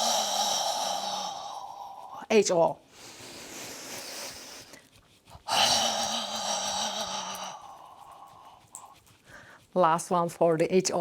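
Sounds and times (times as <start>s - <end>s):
person exhaling a long ho: 0.0s - 2.2s, 5.5s - 9.6s.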